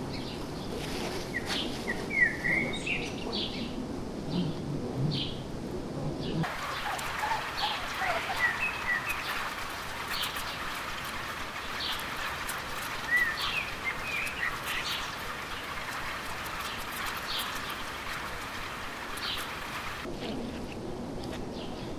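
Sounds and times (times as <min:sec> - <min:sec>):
birds chirping: 0:06.2 - 0:20.1
stream rushing: 0:06.4 - 0:20.1.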